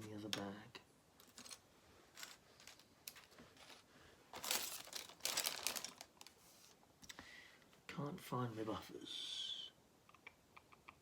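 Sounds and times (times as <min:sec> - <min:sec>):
plastic bags crinkling: 0:02.2 - 0:06.8.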